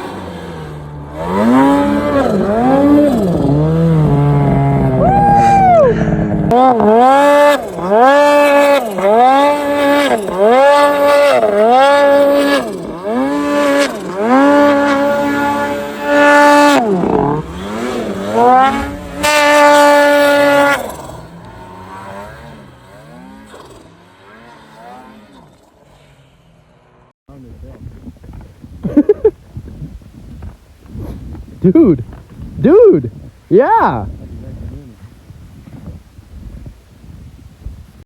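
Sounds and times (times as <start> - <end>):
snowmobile engine revving: 0.0 - 27.5
faint engine running: 0.0 - 29.3.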